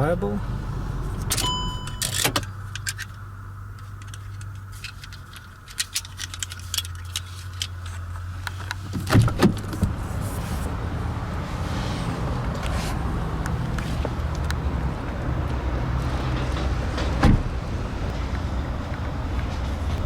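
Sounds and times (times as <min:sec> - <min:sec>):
car engine hum: 0:00.0 - 0:20.0
plastic parts clicking: 0:02.1 - 0:03.2, 0:03.8 - 0:08.8.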